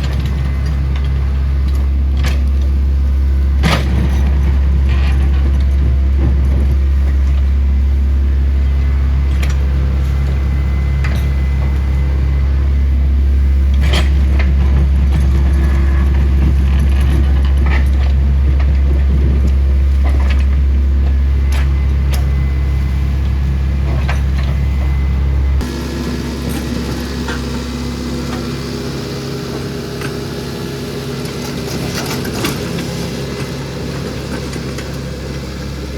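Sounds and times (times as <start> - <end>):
heavy engine droning: 0.0 - 35.9.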